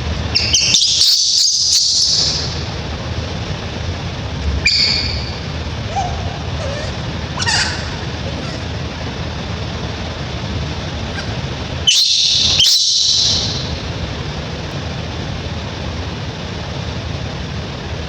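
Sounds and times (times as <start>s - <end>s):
low background hum: 0.0s - 18.0s
baby monkey shrieking: 0.3s - 2.8s, 4.6s - 9.2s, 11.1s - 14.0s.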